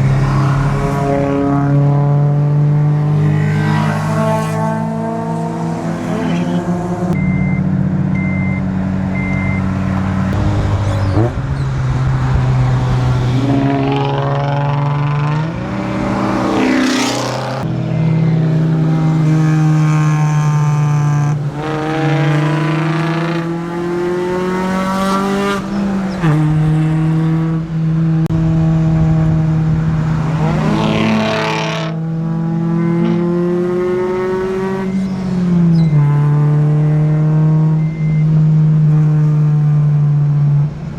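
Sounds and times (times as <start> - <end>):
cars whooshing past: 0.0 - 7.2, 9.7 - 20.2, 21.3 - 37.8
car engine shifting gears: 0.0 - 40.0
short beep: 7.2 - 9.7, 37.7 - 38.4.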